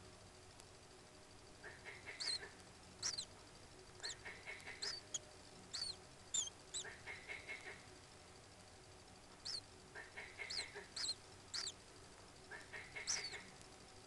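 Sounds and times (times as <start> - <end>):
steady background hiss: 0.0 - 14.0
hoarse lower bird calls: 1.6 - 3.3, 4.0 - 7.8, 9.4 - 11.8, 12.5 - 13.5
high bird chirps: 2.0 - 3.3, 4.0 - 6.9, 9.4 - 9.6, 10.4 - 11.8, 12.8 - 13.4.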